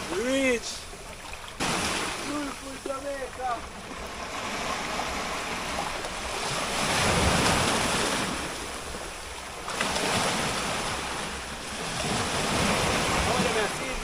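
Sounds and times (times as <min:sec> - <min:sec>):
ocean surf washing ashore: 0:00.0 - 0:14.0.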